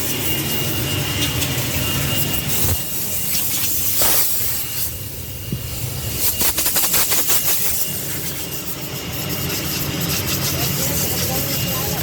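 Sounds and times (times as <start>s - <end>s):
water spray hissing: 2.5s - 5.0s, 5.7s - 11.6s.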